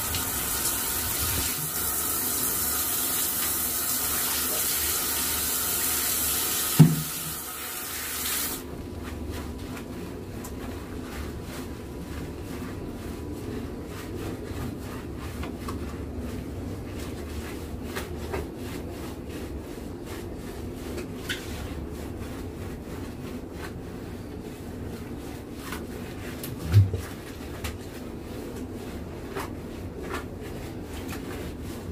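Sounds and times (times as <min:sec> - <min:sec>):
water running from tap: 0:00.0 - 0:08.6
wet rubbing and scrubbing: 0:00.0 - 0:31.9.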